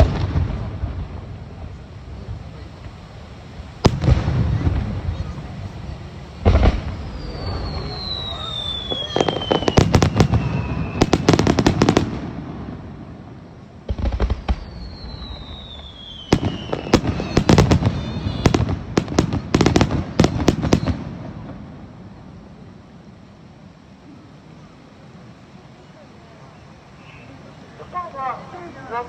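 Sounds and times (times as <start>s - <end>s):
deep firework launch thud: 0.0s - 1.7s, 3.8s - 5.4s, 6.4s - 13.0s, 13.8s - 21.7s
crackling firework bangs: 0.0s - 22.3s
firework whistle: 4.0s - 12.2s, 14.2s - 21.2s.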